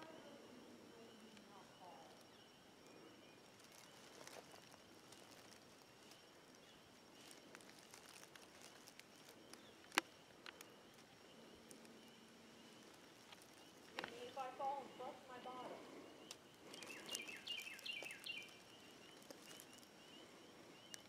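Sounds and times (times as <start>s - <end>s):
footsteps on forest floor: 3.6s - 6.4s, 7.1s - 10.2s, 16.6s - 19.9s.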